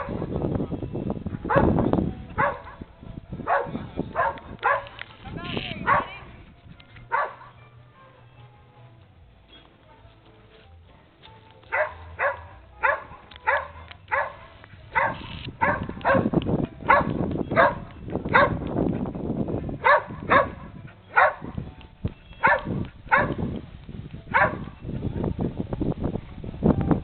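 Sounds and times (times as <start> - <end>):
dog barking: 1.5 - 1.8, 2.4 - 2.8, 3.4 - 5.0, 5.8 - 6.2, 7.1 - 8.2, 11.7 - 16.3, 16.9 - 18.6, 19.8 - 21.6, 22.4 - 23.5, 24.3 - 24.8.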